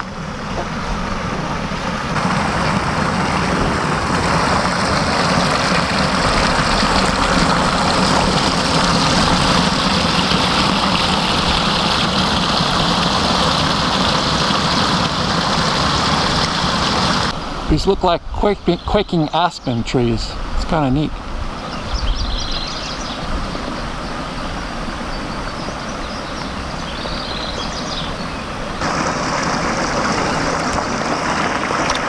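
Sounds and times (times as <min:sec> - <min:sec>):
motorcycle engine running: 0:00.0 - 0:17.3
wind rush on microphone: 0:20.3 - 0:32.0.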